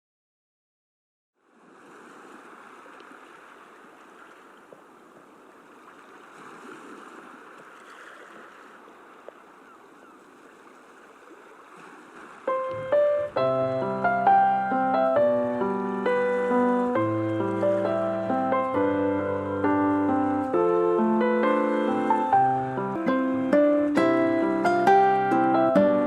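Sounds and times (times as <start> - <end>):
ocean waves washing: 1.4 - 26.0
instrumental music with ringing notes: 12.5 - 26.0.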